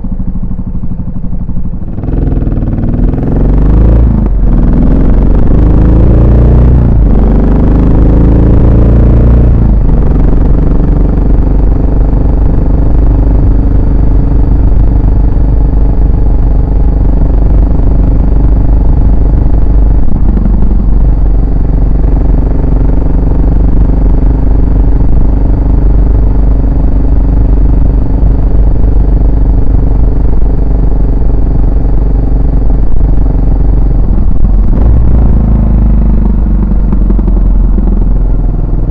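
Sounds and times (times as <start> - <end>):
motorcycle engine and exhaust: 0.0 - 38.9.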